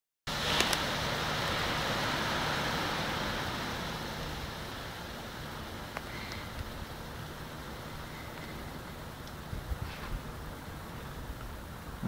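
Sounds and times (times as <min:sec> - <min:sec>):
gravel pouring from dump truck: 0:00.3 - 0:08.8
low steady hum: 0:00.3 - 0:12.0.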